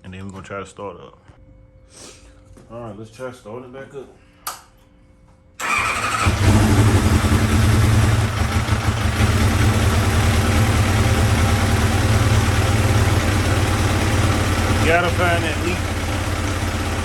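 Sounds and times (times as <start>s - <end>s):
motorcycle engine idling: 5.6s - 17.0s.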